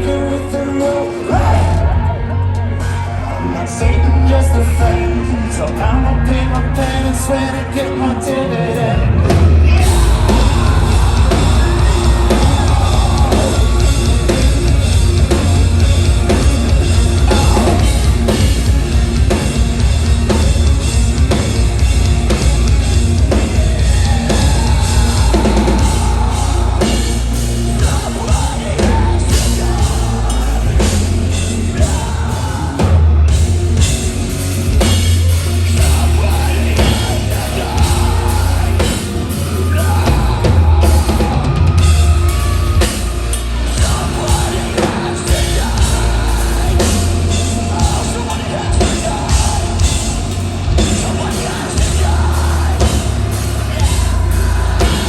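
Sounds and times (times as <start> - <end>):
distorted guitars: 0.0 - 55.0
sung and screamed vocals: 0.0 - 55.0
pounding drums: 9.0 - 55.0.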